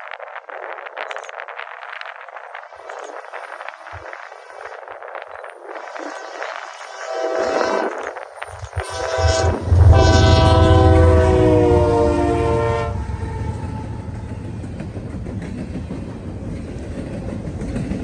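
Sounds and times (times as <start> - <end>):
train wheels rumbling on rails: 0.0 - 18.0
locomotive air horn blasts: 6.8 - 14.1
locomotive engine rumble: 7.9 - 17.4.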